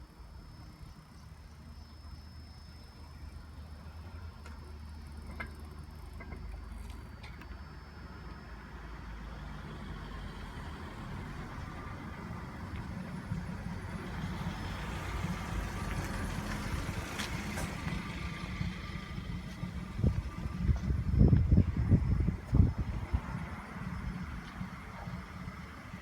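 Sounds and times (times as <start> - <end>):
heavy vehicle engine rumbling: 7.9 - 26.0.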